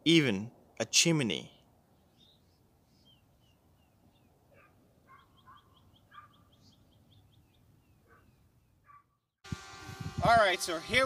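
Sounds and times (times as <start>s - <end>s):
faint birds chirping: 1.3s - 9.4s.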